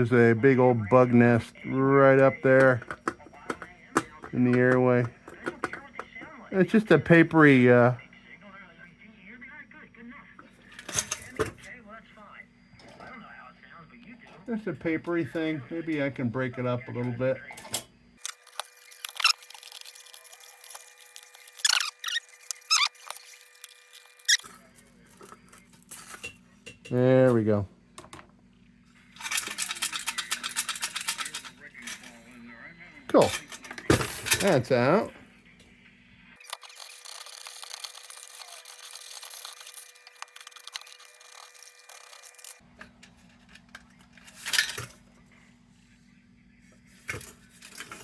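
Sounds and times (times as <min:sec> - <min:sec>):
hand scraping on metal parts: 0:36.4 - 0:42.6.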